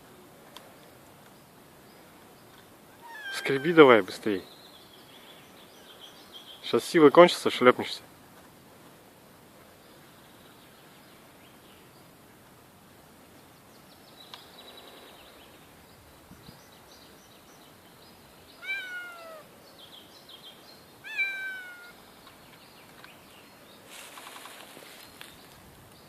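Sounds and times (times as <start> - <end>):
cat meowing: 3.0 - 3.8, 18.6 - 19.5, 21.0 - 22.0.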